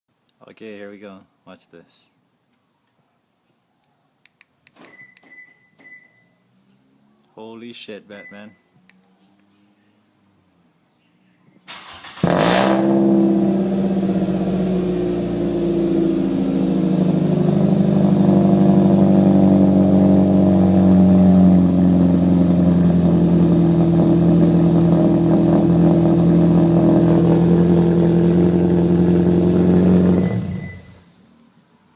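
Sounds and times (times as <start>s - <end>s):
car engine starting and idling: 11.7s - 31.1s.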